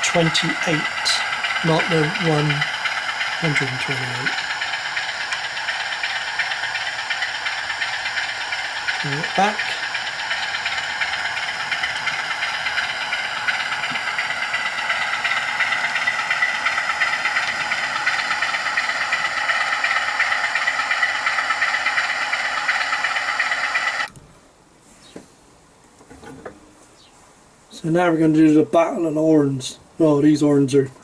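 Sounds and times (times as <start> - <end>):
model train diesel engine sound: 0.0 - 24.1.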